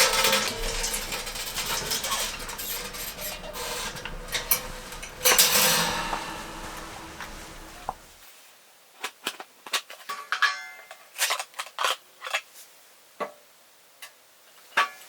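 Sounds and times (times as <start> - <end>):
camp gear clattering: 0.0 - 8.1.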